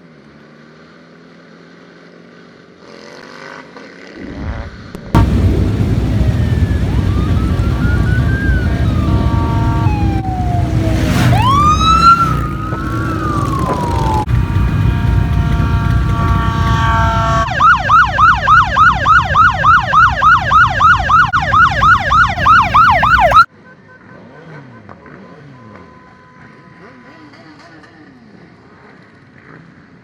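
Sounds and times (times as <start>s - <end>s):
low engine rumble: 4.2s - 23.5s
emergency vehicle sirens: 4.9s - 23.5s.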